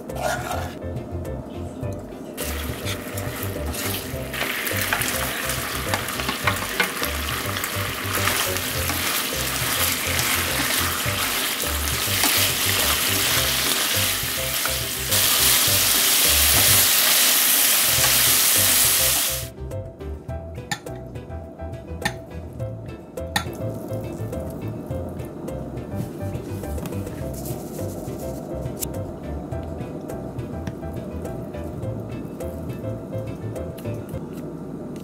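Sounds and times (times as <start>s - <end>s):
wooden spatula scraping and tapping: 0.1s - 0.8s, 2.5s - 7.2s
vegetables sizzling in a frying pan: 2.4s - 19.5s.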